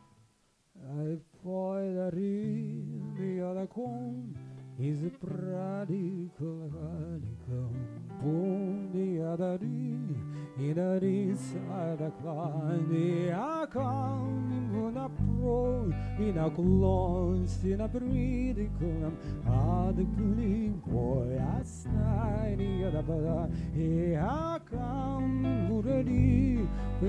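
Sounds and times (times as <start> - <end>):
person singing: 0.8 - 27.0
guitar vibrato melody: 2.4 - 27.0
heavy bass notes: 15.2 - 27.0.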